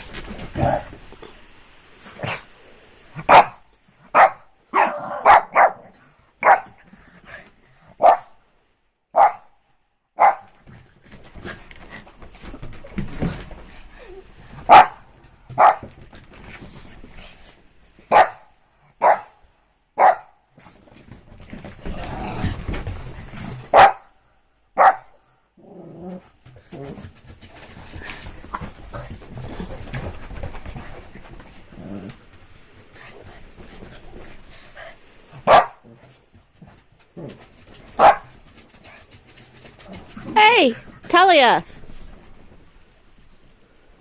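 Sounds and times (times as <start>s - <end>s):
dog barking: 3.3s - 6.8s, 8.0s - 8.4s, 9.1s - 9.6s, 10.2s - 10.5s, 14.7s - 15.0s, 15.6s - 15.8s, 18.1s - 19.4s, 20.0s - 20.4s, 23.7s - 24.1s, 24.8s - 25.1s, 35.5s - 35.8s, 38.0s - 38.3s.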